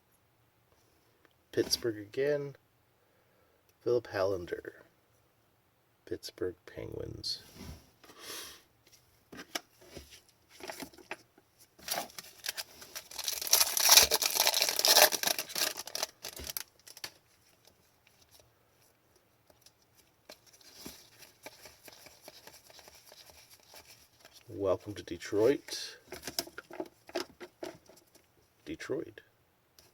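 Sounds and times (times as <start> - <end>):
packaging crinkling and tearing: 11.8 - 17.6
trading cards clicking and rustling: 11.9 - 17.2.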